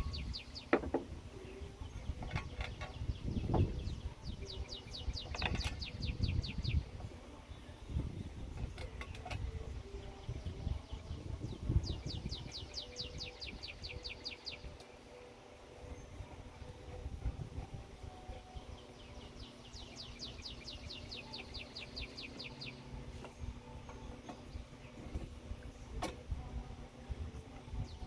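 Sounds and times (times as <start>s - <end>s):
songbird trilling: 0.0s - 7.0s, 11.8s - 14.9s, 18.3s - 22.9s
soft knocks: 0.7s - 1.1s.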